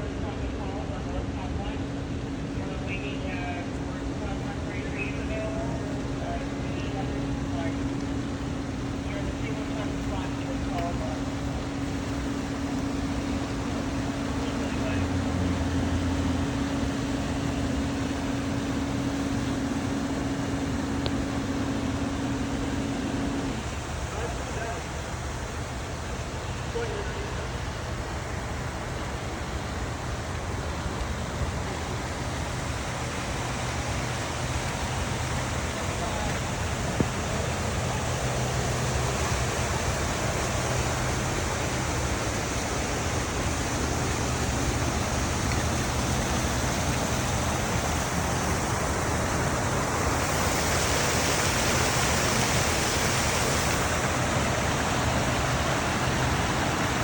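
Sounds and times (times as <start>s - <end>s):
low steady hum: 0.0s - 57.0s
water rushing: 0.0s - 57.0s.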